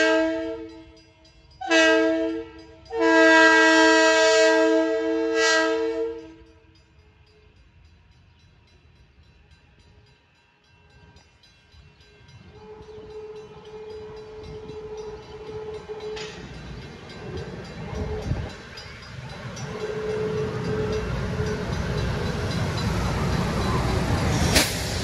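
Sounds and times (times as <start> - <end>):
train rumble: 0.0 - 25.0
sharp metallic clank: 24.3 - 25.0.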